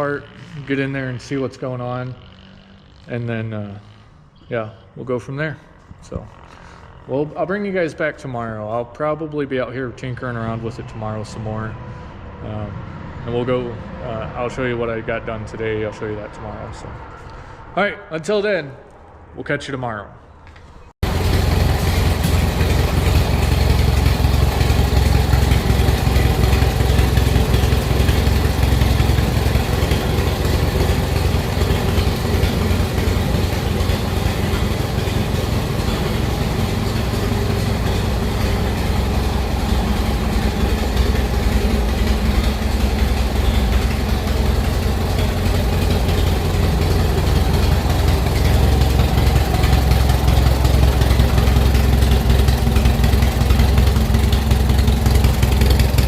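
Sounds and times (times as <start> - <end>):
engine idling: 0.0 - 4.5, 5.4 - 8.8, 21.0 - 56.0.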